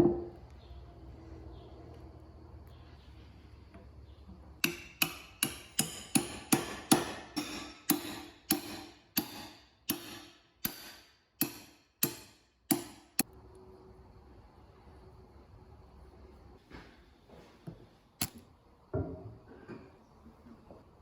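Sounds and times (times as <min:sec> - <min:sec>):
hammer blows ringing: 0:04.6 - 0:13.2.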